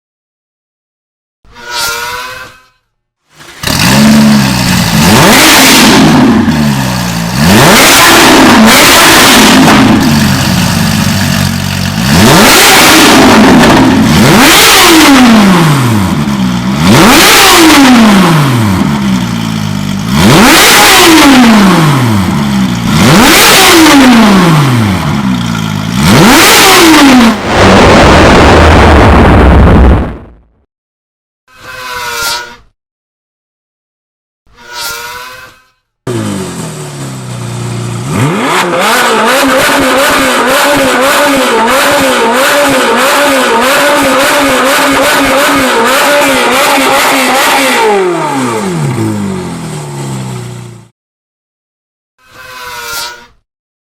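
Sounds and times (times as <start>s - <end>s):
sports car engine revving: 3.4s - 30.2s, 36.1s - 50.8s.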